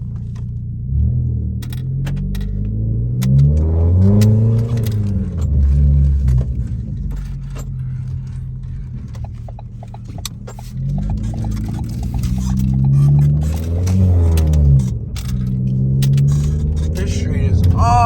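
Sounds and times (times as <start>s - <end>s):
car exhaust revving and idling: 0.0s - 18.0s.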